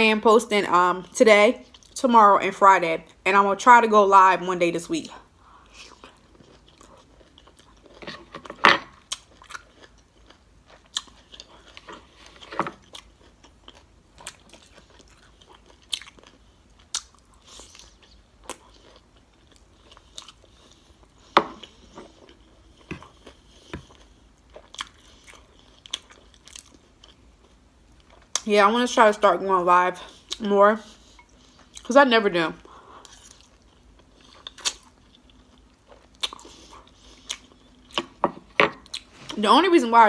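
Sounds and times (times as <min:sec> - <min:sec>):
chewing crunches: 0:05.6 - 0:28.4, 0:33.0 - 0:38.2.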